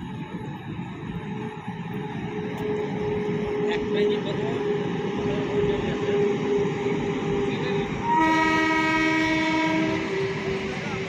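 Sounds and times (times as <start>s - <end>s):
train rumbling past: 0.0s - 11.0s
train horn blast: 8.0s - 10.6s.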